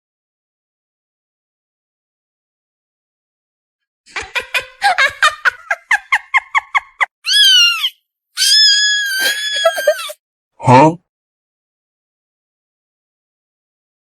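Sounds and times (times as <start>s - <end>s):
high-pitched squeaky calls: 7.2s - 10.2s.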